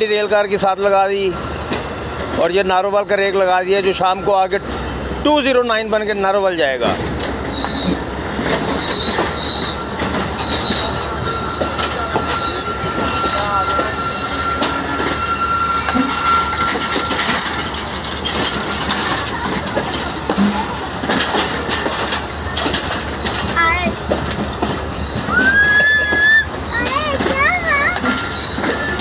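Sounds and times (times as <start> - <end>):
wheels clacking over rail joints: 0.0 - 29.0
train wheel squeal: 5.7 - 6.7, 7.4 - 23.6, 24.4 - 29.0.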